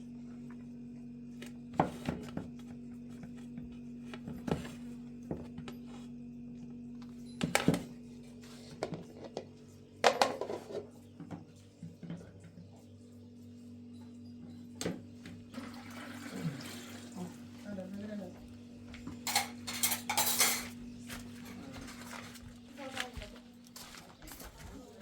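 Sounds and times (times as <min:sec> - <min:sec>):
pots and dishes clattering: 0:08.7 - 0:11.0, 0:19.1 - 0:22.2.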